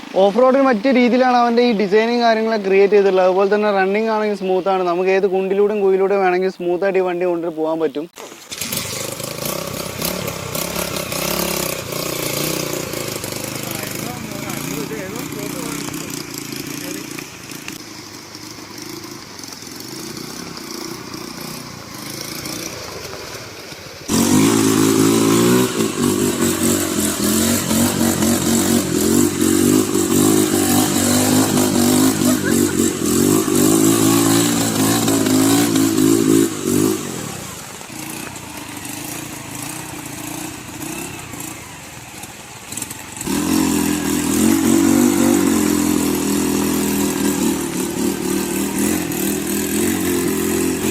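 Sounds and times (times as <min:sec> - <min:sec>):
motorcycle engine revving: 0:08.2 - 0:50.9.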